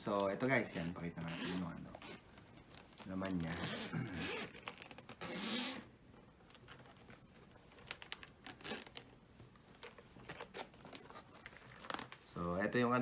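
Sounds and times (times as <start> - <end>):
packaging clicks and rustles: 2.7 - 5.3, 6.4 - 12.7.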